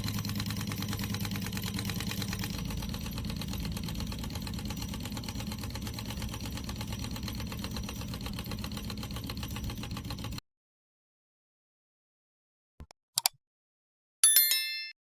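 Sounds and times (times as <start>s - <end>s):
model engine clattering: 0.0s - 10.4s.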